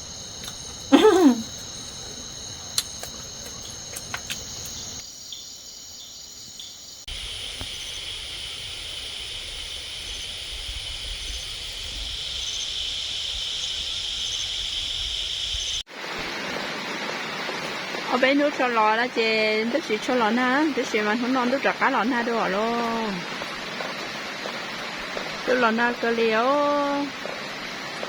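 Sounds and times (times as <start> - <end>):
high-pitched insect chorus: 0.0 - 15.9.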